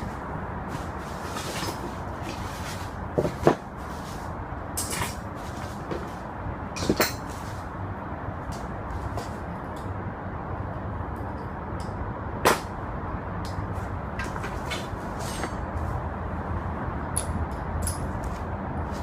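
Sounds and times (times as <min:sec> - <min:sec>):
tools and metal parts clanking: 0:00.0 - 0:07.6, 0:14.2 - 0:15.8, 0:17.1 - 0:18.4
steady low background noise: 0:00.0 - 0:19.0.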